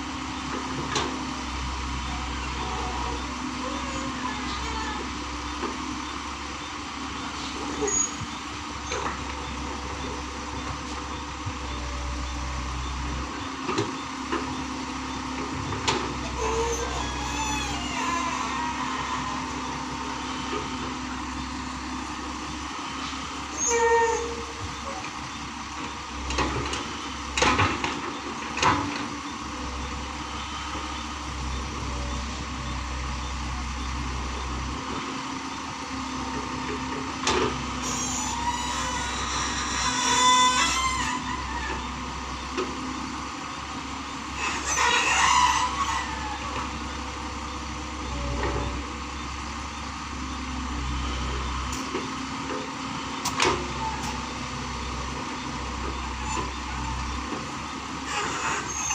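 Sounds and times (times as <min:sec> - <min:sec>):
diesel engine humming: 0:00.0 - 0:58.9.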